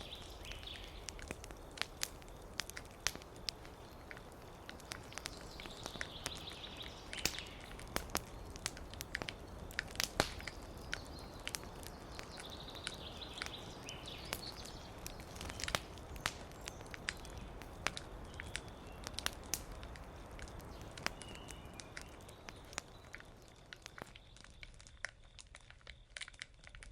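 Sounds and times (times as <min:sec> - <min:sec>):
songbird twittering: 0:00.0 - 0:01.6, 0:03.2 - 0:08.6, 0:10.4 - 0:19.2, 0:20.6 - 0:23.2
wood fire crackling and popping: 0:00.0 - 0:26.9.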